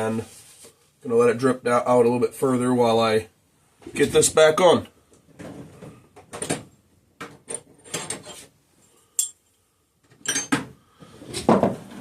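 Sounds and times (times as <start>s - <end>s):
metal tools clinking: 9.2s - 9.4s, 10.2s - 10.6s.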